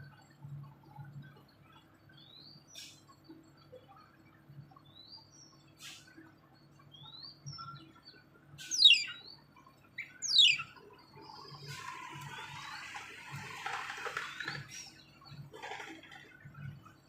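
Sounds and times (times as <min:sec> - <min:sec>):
bird chirping and calling: 0:08.6 - 0:09.3, 0:10.0 - 0:15.0.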